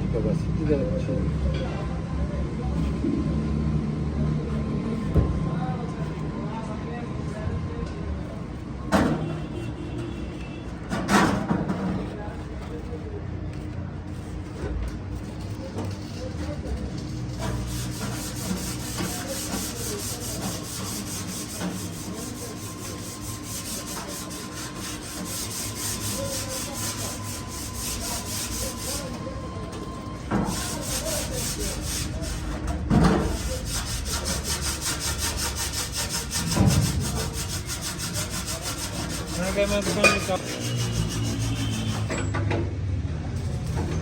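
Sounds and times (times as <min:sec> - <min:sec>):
rapid back-and-forth rubbing: 0:17.2 - 0:29.3, 0:30.4 - 0:42.1.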